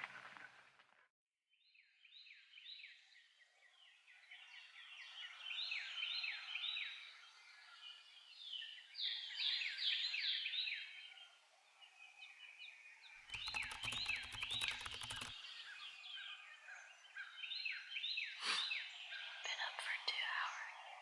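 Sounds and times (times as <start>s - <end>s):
songbirds singing: 3.7s - 21.0s
rapid clicking and rustle: 13.3s - 15.5s.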